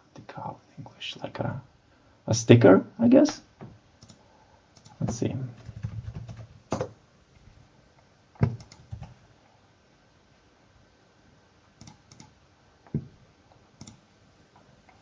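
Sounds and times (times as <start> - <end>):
computer keystrokes: 4.0 - 4.2, 4.8 - 6.9, 8.4 - 9.2, 11.8 - 12.3, 13.8 - 14.0.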